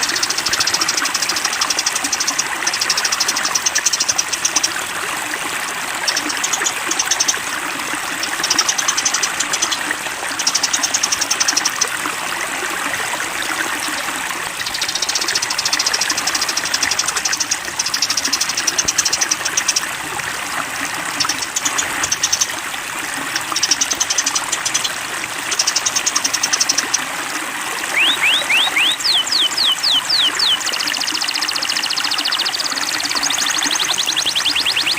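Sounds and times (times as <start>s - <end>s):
flowing water: 0.0s - 34.9s
songbirds buzzy trills: 0.0s - 34.9s
rising bird whistles: 27.9s - 30.8s.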